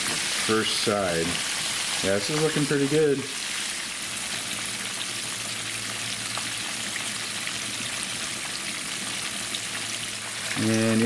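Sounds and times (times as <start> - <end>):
fish frying in hot oil: 0.0 - 11.0.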